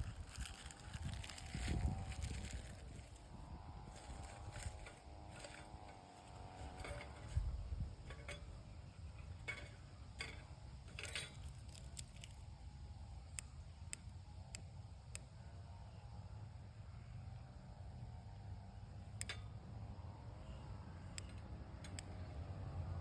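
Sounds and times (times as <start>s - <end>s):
campfire crackling: 0.0s - 7.4s, 9.4s - 15.3s
sharp pops and snaps of fire: 11.0s - 12.6s.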